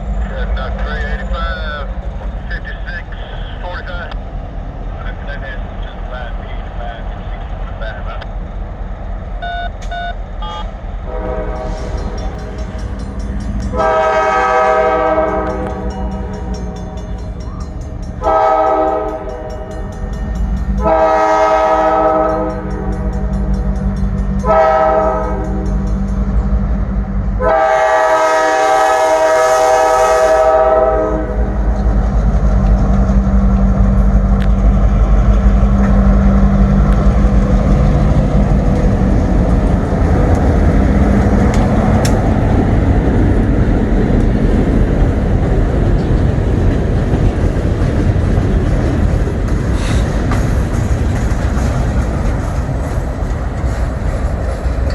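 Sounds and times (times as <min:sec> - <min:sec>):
diesel engine rumble: 0:00.0 - 0:18.2, 0:31.2 - 0:54.9
train horn blasts: 0:10.4 - 0:12.5, 0:13.6 - 0:17.0, 0:18.2 - 0:19.8, 0:20.7 - 0:23.4, 0:24.4 - 0:25.8, 0:27.3 - 0:31.6
train wheels clattering on rails: 0:11.4 - 0:27.0, 0:31.5 - 0:54.9.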